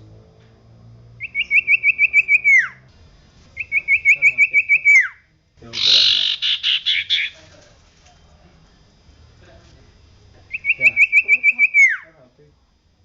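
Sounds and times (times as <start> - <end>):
bird singing rising notes: 1.1 - 2.9, 3.6 - 5.2, 10.5 - 12.1
harsh rasping bird chatter: 5.7 - 7.4.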